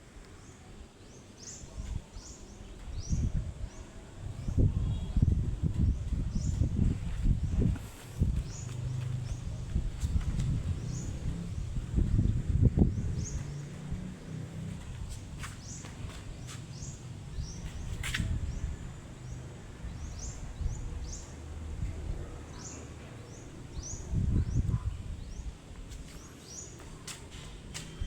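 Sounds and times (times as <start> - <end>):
small birds chirping: 0.4 - 28.0
low rumble: 4.4 - 15.1.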